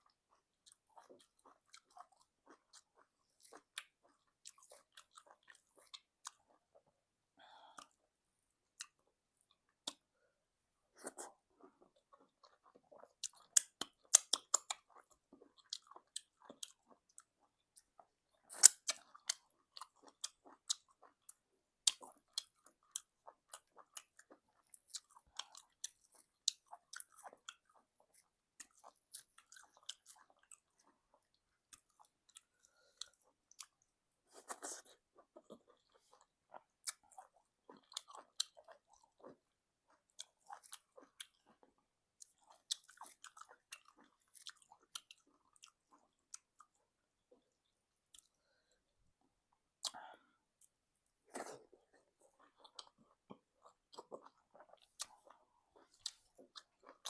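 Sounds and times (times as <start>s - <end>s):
wet chewing: 49.8s - 57.0s.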